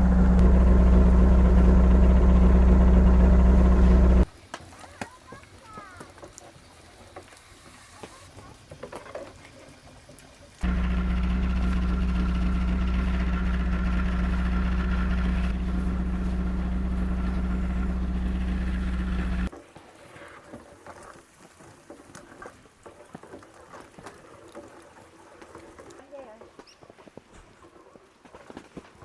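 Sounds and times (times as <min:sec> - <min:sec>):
motor humming: 0:00.0 - 0:04.3, 0:10.6 - 0:19.5.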